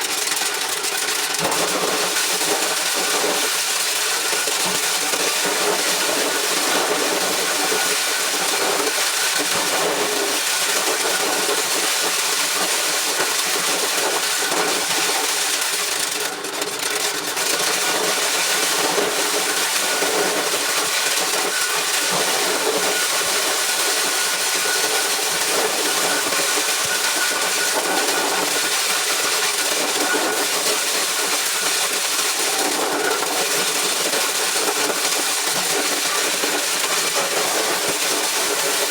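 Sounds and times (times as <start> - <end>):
motor-driven corn sheller running: 0.0 - 38.9.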